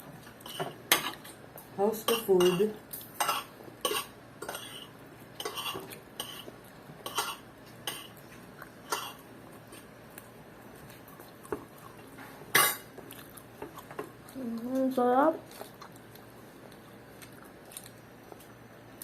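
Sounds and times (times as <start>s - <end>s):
cutlery scraping a plate: 0.4s - 1.4s, 2.1s - 8.2s, 8.9s - 9.9s.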